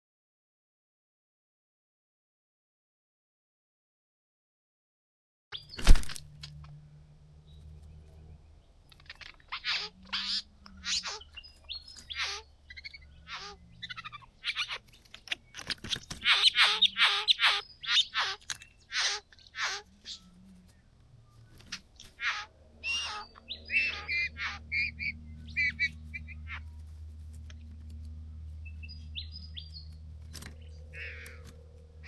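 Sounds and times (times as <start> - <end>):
harsh bird calls: 7.5 - 26.8, 28.6 - 32.0.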